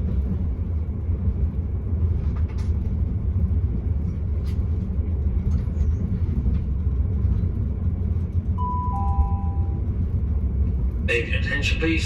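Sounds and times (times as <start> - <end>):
train carriage running rumble: 0.0 - 12.0
chime tone: 8.6 - 9.8.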